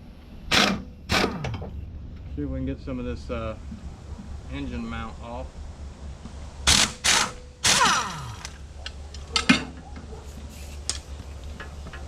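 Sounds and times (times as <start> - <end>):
pneumatic impact wrench bursts: 0.5 - 1.6, 6.6 - 8.7.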